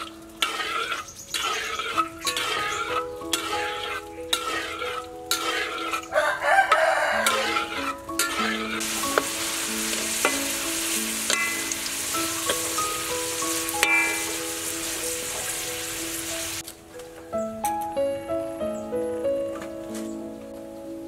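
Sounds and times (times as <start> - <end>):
fruits sizzling in hot oil: 0.0 - 16.7
background music: 0.0 - 21.0.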